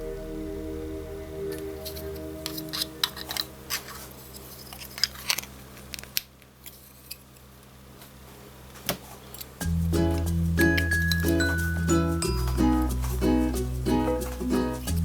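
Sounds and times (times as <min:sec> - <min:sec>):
background music: 0:00.0 - 0:04.4, 0:09.6 - 0:15.0
packaging crackling and clicking: 0:01.9 - 0:07.2.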